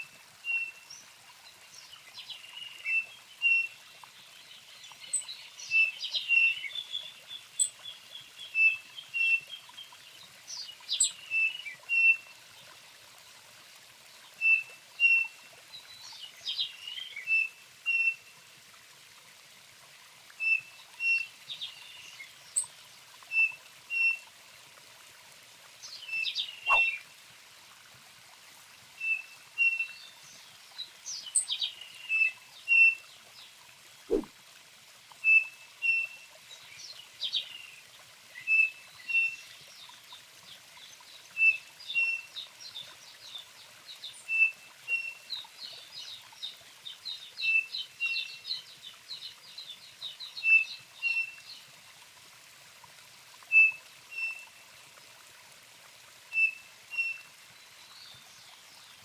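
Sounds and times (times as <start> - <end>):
songbird singing: 10.5 - 12.2, 25.9 - 27.0, 34.1 - 34.3, 49.5 - 51.5.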